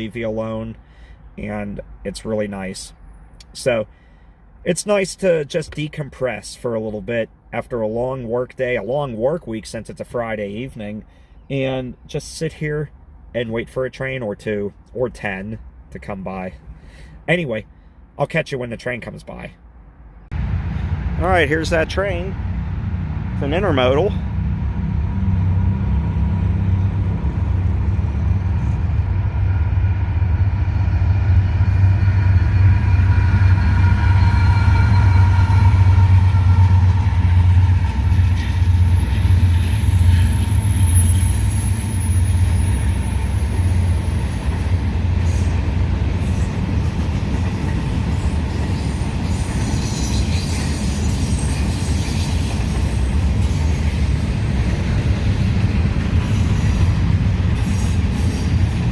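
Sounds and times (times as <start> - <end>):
freight train rumble: 0.0 - 18.1, 18.8 - 58.9
train wheel squeal: 27.4 - 54.9, 56.0 - 58.9.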